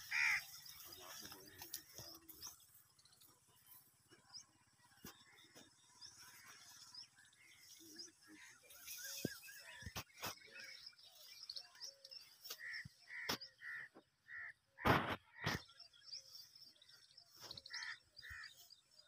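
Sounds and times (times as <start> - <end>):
birds cawing: 0.0 - 2.1, 12.5 - 15.6, 17.6 - 18.7
bushes rustling and crackling: 0.0 - 13.5.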